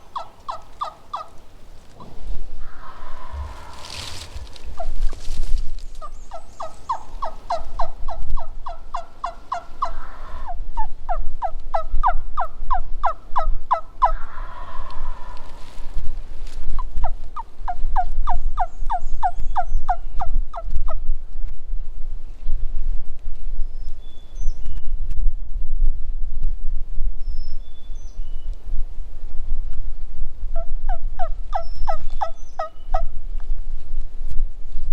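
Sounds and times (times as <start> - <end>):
turkey yelping: 0.0 - 1.4, 2.0 - 5.3, 6.0 - 10.5
low rumble: 1.5 - 8.0.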